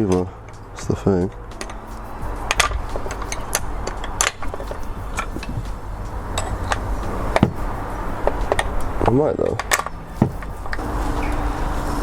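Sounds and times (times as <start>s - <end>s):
tools clicking and tapping: 1.3s - 10.8s.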